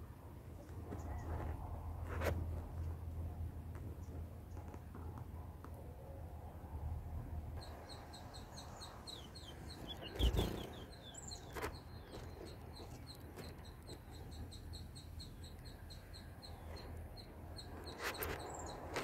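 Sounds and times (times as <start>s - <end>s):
high bird chirps: 7.6s - 18.9s.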